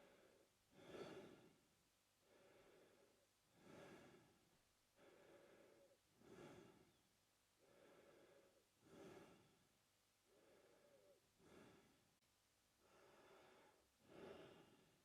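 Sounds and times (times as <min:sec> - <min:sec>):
man breathing through mouth: 0:00.0 - 0:01.6, 0:02.3 - 0:04.4, 0:05.0 - 0:07.0, 0:07.6 - 0:09.6, 0:12.8 - 0:15.0.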